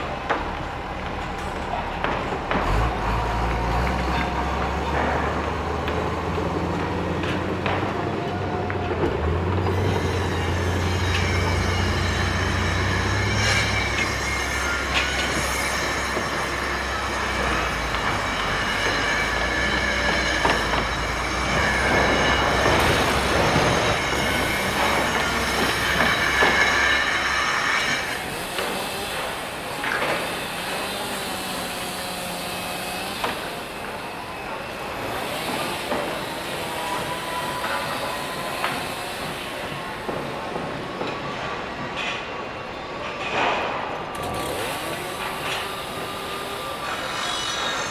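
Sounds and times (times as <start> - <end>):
heavy machinery low rumble: 0.0 - 29.8
high-pitched metallic squeal: 0.0 - 43.2, 44.2 - 47.9
heavy vehicle running: 0.0 - 47.9.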